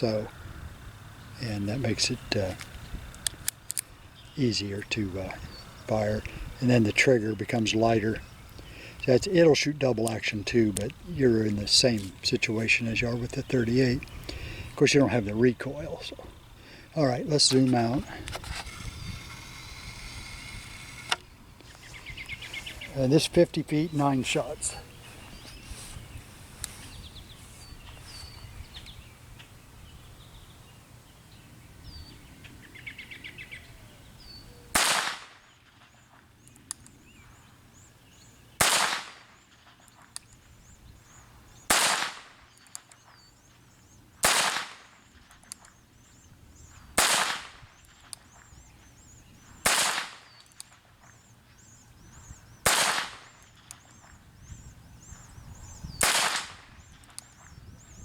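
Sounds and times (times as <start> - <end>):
faint birds chirping: 0.0 - 58.0
revolver shots with ringing echo: 52.7 - 53.3, 56.0 - 56.6.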